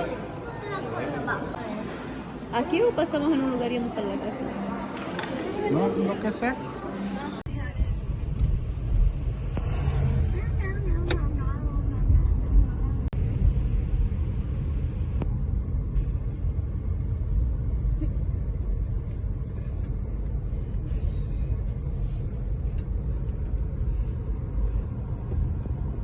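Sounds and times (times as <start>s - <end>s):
car road rumble from inside: 7.9s - 20.2s.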